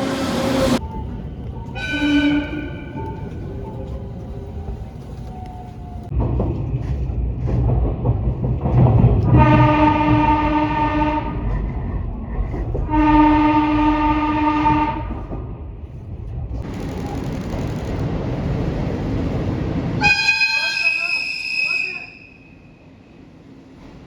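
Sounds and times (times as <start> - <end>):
train rumbling: 0.0 - 24.0
train horn blasts: 1.8 - 3.1, 9.3 - 11.5, 12.9 - 15.2, 20.0 - 22.4.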